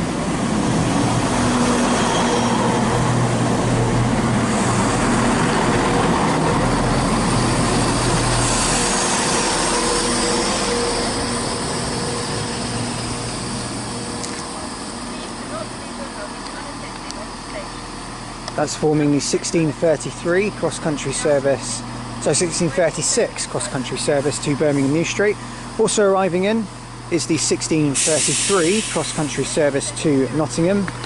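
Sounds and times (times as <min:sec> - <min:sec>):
diesel engines humming: 0:00.0 - 0:31.0
wheels rumbling on rail: 0:00.0 - 0:31.0
high hiss: 0:27.9 - 0:29.5.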